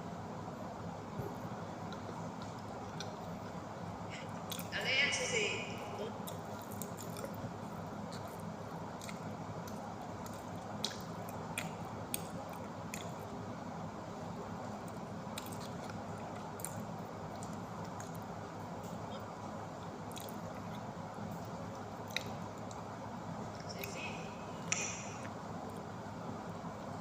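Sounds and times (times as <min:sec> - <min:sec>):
person chewing food: 0:01.4 - 0:04.7, 0:06.2 - 0:23.7.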